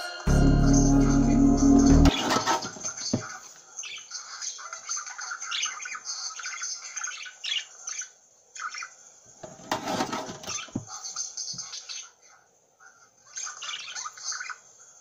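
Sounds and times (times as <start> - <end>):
small bird chirping: 2.9 - 9.1, 13.2 - 14.8.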